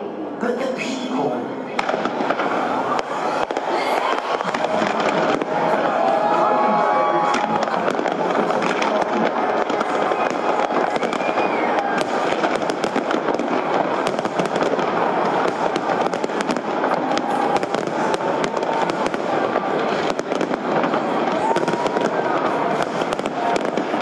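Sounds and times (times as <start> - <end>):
fireworks crackling: 1.7 - 24.0
sharp firework cracks: 1.7 - 24.0.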